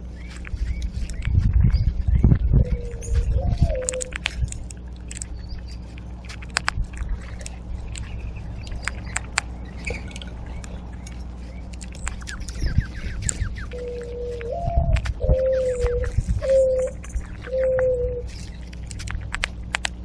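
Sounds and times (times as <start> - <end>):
small birds chirping: 0.0 - 20.0
steady low hum: 0.0 - 20.0
sharp clicks: 0.3 - 20.0
dove cooing: 2.2 - 4.4, 7.1 - 18.6.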